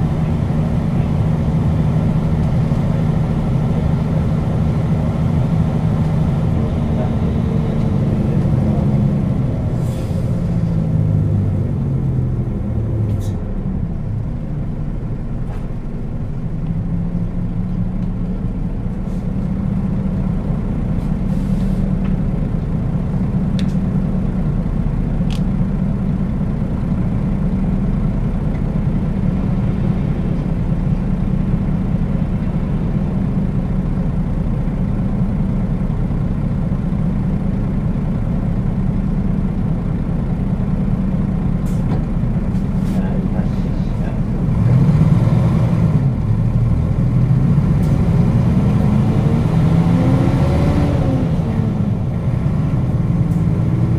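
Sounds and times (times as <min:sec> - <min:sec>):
bus diesel engine drone: 0:00.0 - 0:53.9
road noise: 0:00.0 - 0:53.9
short air hisses: 0:21.3 - 0:21.9.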